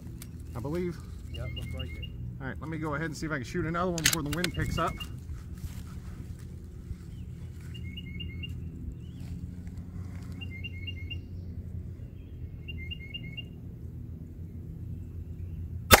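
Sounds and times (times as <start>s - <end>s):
steady low rumble: 0.0s - 16.0s
songbird chirping: 0.1s - 3.0s, 7.0s - 13.6s.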